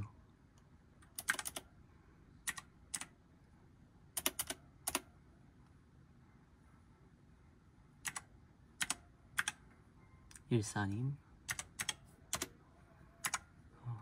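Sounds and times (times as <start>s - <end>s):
keyboard typing clicks: 1.0s - 1.7s, 2.4s - 3.1s, 4.2s - 5.1s, 8.0s - 9.6s, 11.5s - 12.5s, 13.2s - 13.5s.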